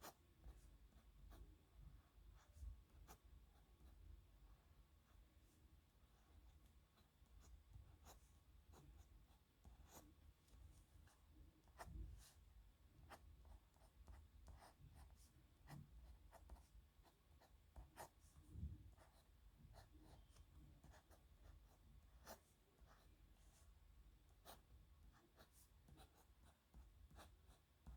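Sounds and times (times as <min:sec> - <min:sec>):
pen scratching on paper: 0:13.0 - 0:18.3, 0:18.9 - 0:23.1, 0:24.3 - 0:27.9.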